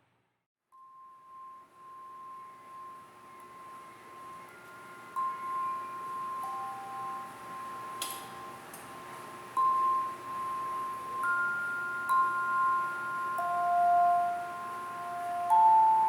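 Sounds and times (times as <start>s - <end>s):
chime notes ringing: 9.6s - 16.0s.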